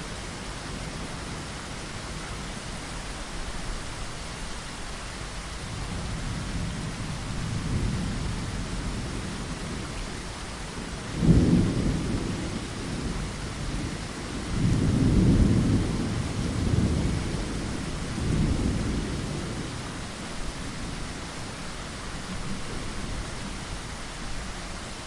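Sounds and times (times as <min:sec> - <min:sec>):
rain on a window: 0:00.0 - 0:25.0
thunder rumbling: 0:05.7 - 0:21.4
sharp thunder clap: 0:11.2 - 0:13.2.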